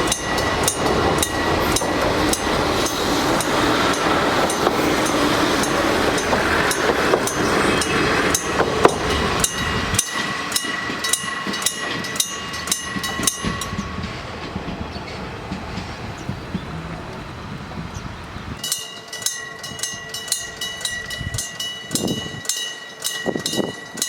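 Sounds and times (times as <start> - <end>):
diesel railcar passing: 0.0 - 24.0
wheels clicking over rail joints: 0.0 - 24.0.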